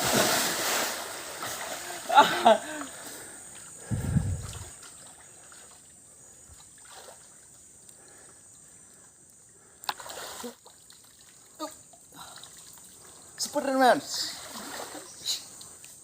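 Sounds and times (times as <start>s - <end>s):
short sharp splashes: 0.0s - 1.9s
river water trickling: 0.0s - 16.0s
heavy low thump: 3.9s - 4.6s.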